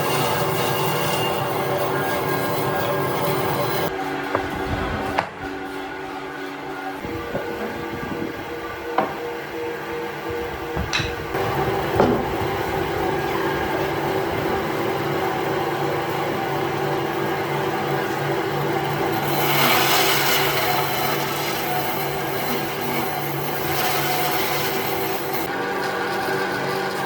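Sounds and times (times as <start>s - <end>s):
power tool sanding wood: 0.0s - 3.9s, 18.0s - 27.0s.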